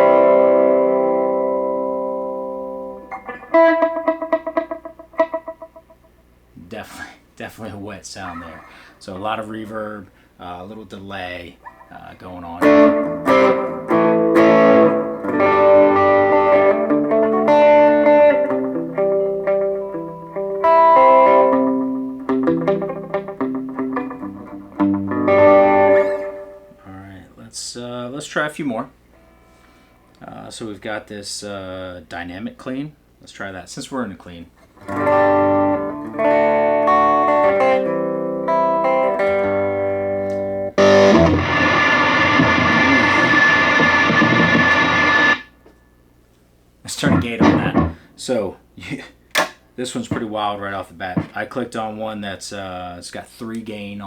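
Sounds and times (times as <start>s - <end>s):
electric guitar chords strummed: 0.0s - 6.3s, 12.6s - 26.8s, 34.8s - 45.6s, 47.0s - 48.1s.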